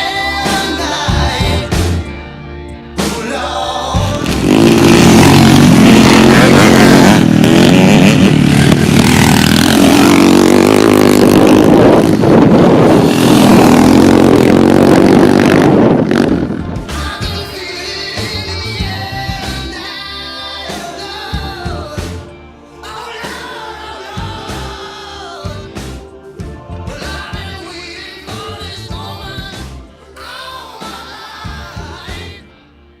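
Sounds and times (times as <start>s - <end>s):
music: 0.0s - 33.0s
motorcycle engines revving: 3.0s - 17.6s.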